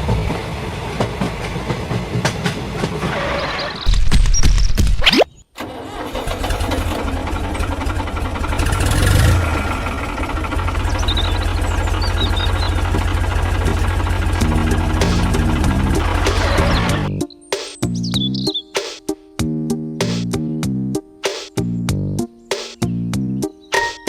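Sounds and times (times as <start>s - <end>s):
small engine throbbing: 6.6s - 17.1s.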